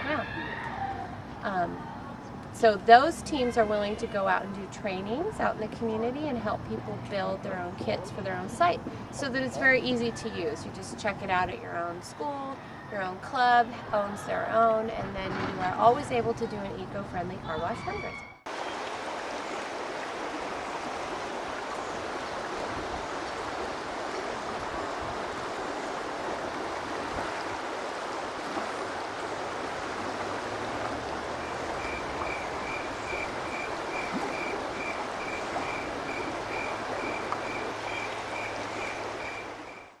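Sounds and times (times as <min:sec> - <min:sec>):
running water: 0:18.5 - 0:40.0.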